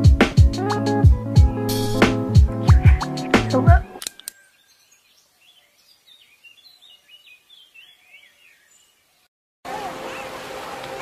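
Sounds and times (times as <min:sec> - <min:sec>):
bird chirping: 0:04.0 - 0:09.3.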